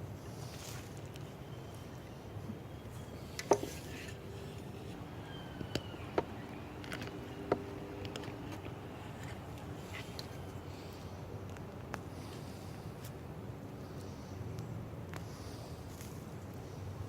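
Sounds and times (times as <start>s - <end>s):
steady low background noise: 0.0s - 17.0s
digging tool knocking and scraping: 3.2s - 4.6s.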